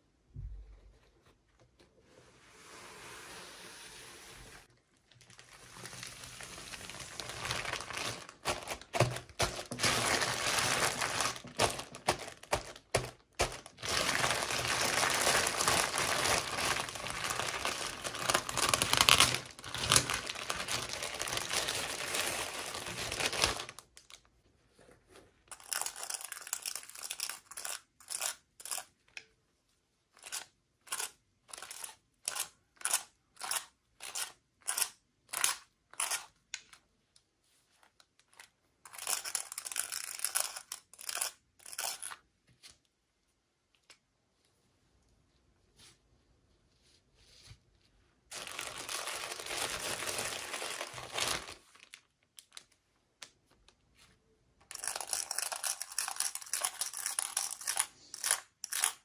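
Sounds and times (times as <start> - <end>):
packaging crinkling and tearing: 5.1 - 24.3, 48.3 - 52.8, 54.7 - 59.0.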